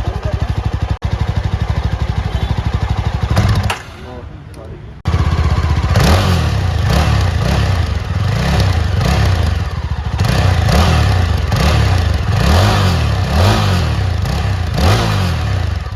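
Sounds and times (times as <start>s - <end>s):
motorcycle engine revving: 0.0s - 15.9s.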